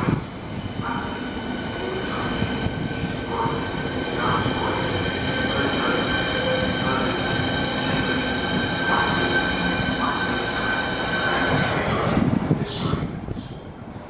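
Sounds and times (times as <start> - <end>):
train running gear rumble: 0.0 - 13.4
train wheels squealing: 4.1 - 11.7.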